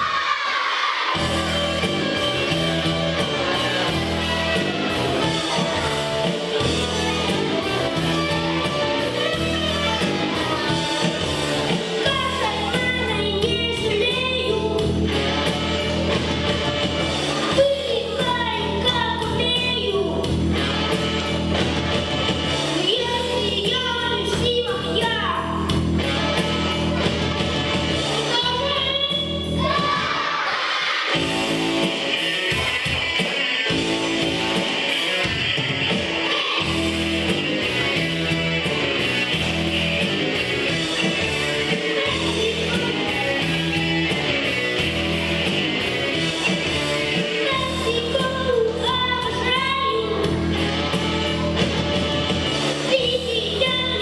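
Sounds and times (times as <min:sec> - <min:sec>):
backing music with guitar: 0:01.2 - 0:30.3, 0:31.1 - 0:54.0
child singing: 0:09.2 - 0:15.0, 0:17.4 - 0:20.3, 0:22.8 - 0:25.7, 0:28.2 - 0:31.2, 0:41.5 - 0:43.7, 0:47.1 - 0:50.6, 0:52.8 - 0:54.0.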